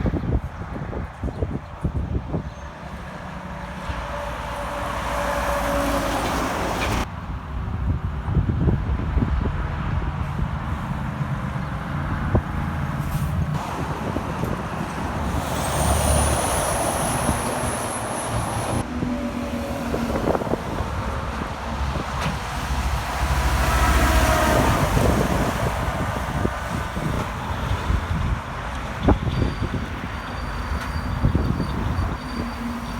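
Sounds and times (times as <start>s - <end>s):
trucks passing on highway: 0.0s - 32.9s.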